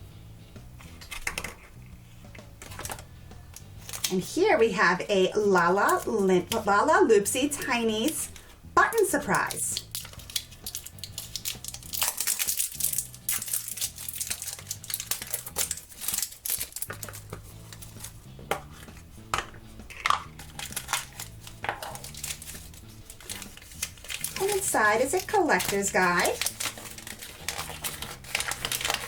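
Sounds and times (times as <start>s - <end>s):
soft background music: 0.0s - 29.0s
plastic bag crinkling and tearing: 3.7s - 4.1s, 9.4s - 18.2s, 20.0s - 29.0s.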